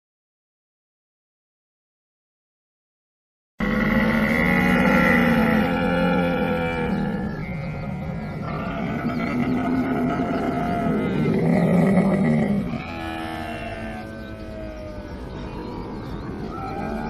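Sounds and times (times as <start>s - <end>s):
camel calling: 3.6s - 17.0s.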